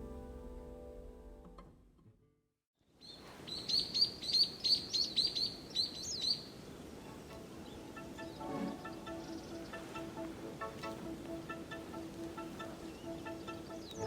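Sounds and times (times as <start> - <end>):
faint outdoor hiss: 2.8 - 14.0
bird chirping: 3.0 - 14.0.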